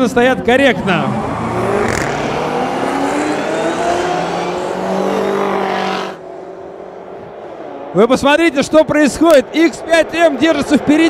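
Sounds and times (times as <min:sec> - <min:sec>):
car engines accelerating hard: 0:00.0 - 0:11.0.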